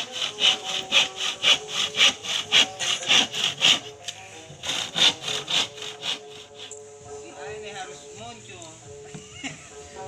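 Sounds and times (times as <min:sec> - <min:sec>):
hand saw cutting wood: 0:00.0 - 0:06.8.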